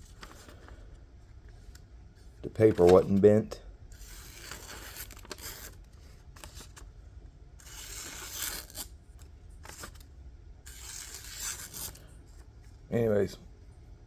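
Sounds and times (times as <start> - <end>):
knife slicing through paper: 4.0 - 5.8, 7.6 - 8.9, 10.7 - 12.0.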